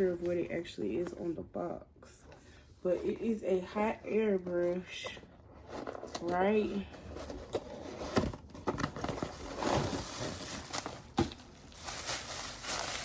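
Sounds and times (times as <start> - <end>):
packaging crinkling and rustling: 5.5 - 13.0.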